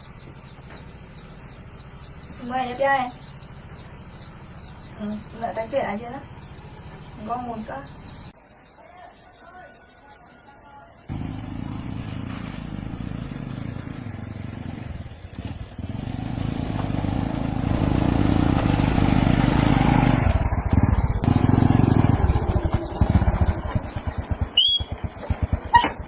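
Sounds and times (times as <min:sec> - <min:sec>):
small engine running: 0:11.1 - 0:26.0.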